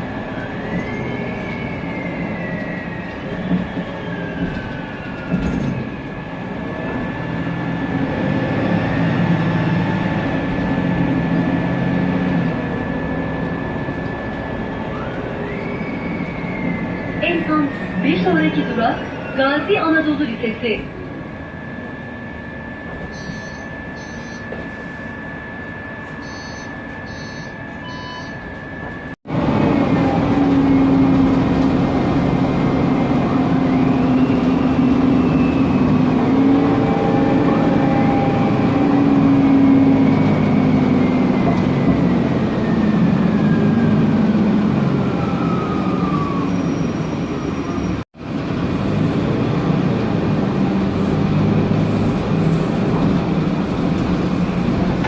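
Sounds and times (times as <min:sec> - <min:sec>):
bus interior running noise: 0:00.0 - 0:55.0
steady high whine: 0:10.2 - 0:29.2
transmission whistle gliding in pitch: 0:13.6 - 0:29.2.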